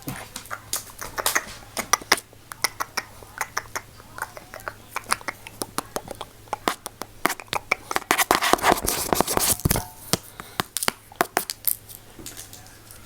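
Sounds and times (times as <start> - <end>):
rubbing rustling noise: 7.3 - 9.8.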